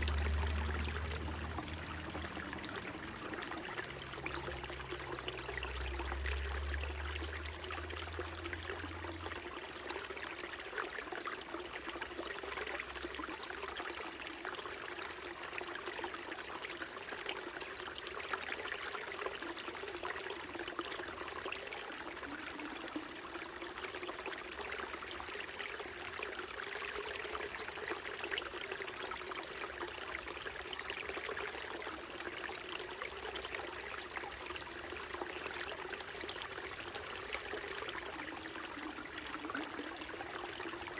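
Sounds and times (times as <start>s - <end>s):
faint low rumble: 0.0s - 9.3s
stream trickling over rocks: 0.0s - 40.9s.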